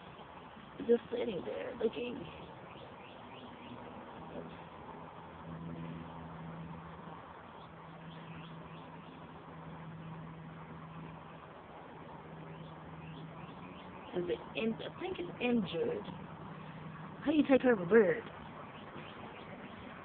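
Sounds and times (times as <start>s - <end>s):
low motor hum: 0.0s - 20.0s
faint bird chirps: 1.9s - 4.7s, 7.5s - 11.5s, 12.3s - 15.4s, 18.3s - 20.0s.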